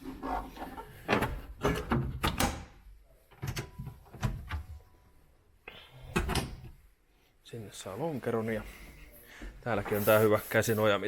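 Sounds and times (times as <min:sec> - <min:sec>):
latch and panel clicks and knocks: 0:01.1 - 0:02.8.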